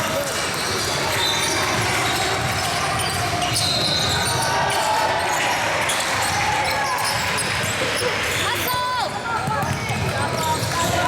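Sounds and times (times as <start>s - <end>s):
murmur of voices: 0.0s - 11.0s
basketball bouncing on court: 9.1s - 11.0s.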